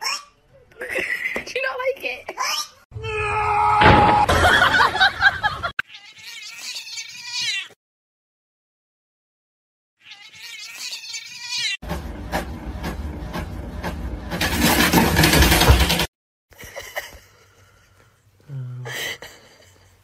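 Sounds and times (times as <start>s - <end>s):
cat meowing: 5.8s - 7.8s, 10.0s - 11.8s.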